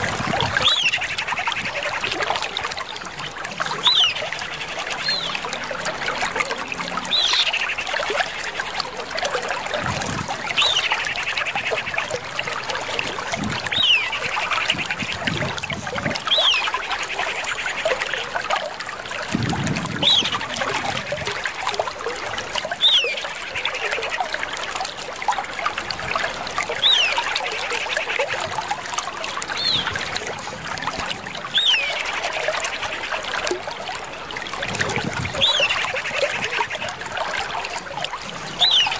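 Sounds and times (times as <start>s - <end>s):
bird calling whistle and trill: 16.3s - 16.8s, 38.6s - 38.9s.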